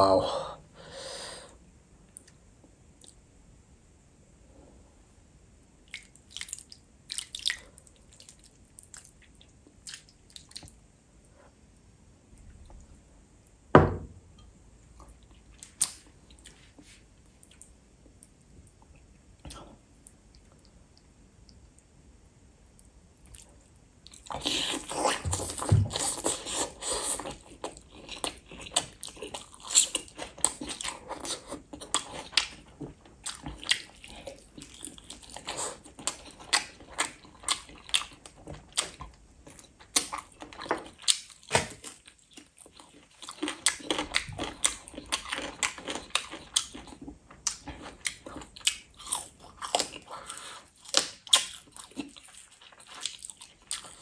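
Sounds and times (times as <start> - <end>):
wet chewing with mouth clicks: 5.9 - 10.8, 22.8 - 54.0.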